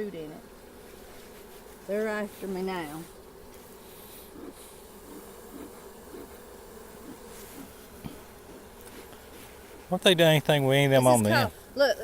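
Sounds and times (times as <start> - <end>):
honey bees buzzing: 0.0 - 12.0.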